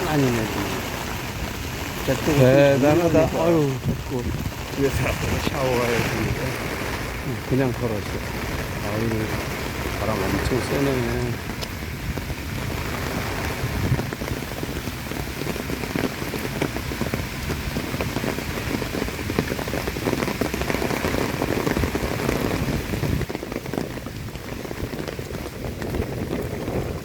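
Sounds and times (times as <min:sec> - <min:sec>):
heavy rain falling: 0:00.0 - 0:27.0
strong wind: 0:00.0 - 0:27.0.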